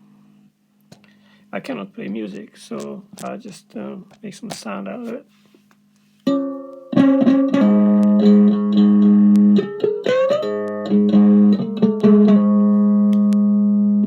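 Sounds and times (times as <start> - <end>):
electric one-string instrument plucked: 6.2 - 14.0.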